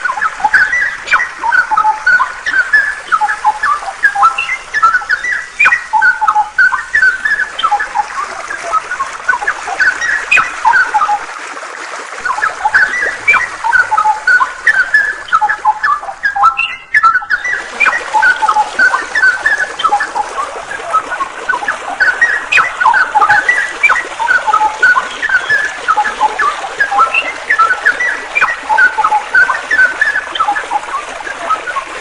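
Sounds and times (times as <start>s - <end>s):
songbird chirping: 0.0s - 11.3s, 12.2s - 32.0s
flowing water: 0.0s - 32.0s.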